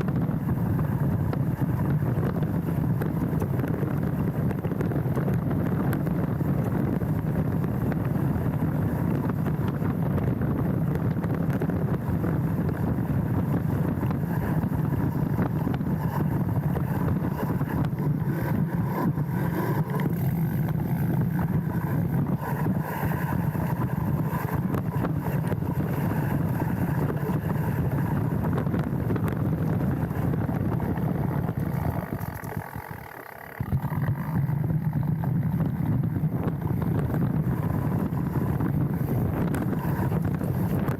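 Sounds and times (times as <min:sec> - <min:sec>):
wind on microphone: 0:00.0 - 0:40.9
bike rattling clicks and knocks: 0:14.2 - 0:37.2.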